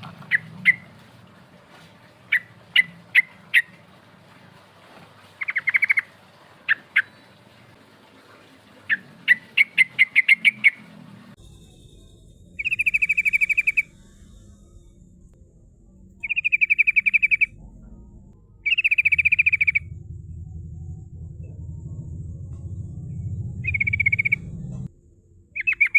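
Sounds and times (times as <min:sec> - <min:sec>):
bird chirps and rolling trills: 0:05.4 - 0:07.6, 0:08.9 - 0:25.9.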